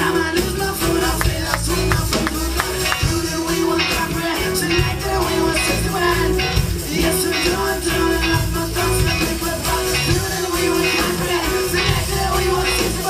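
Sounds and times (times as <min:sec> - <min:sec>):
bass guitar: 0:00.0 - 0:13.0
electric guitar: 0:00.0 - 0:13.0
drum beat: 0:01.0 - 0:04.2.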